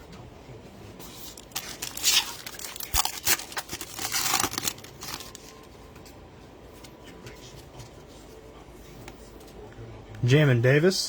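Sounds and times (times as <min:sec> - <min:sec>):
plastic wrapper tearing and crinkling: 0:01.2 - 0:05.6.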